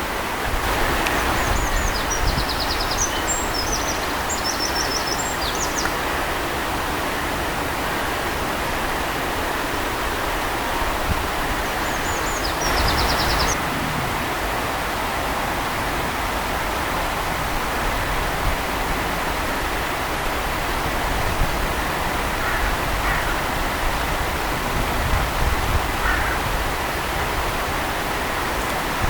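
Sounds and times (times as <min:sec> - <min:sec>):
running water rushing: 0:00.0 - 0:29.0
bird chirping: 0:01.4 - 0:05.9, 0:11.8 - 0:13.6.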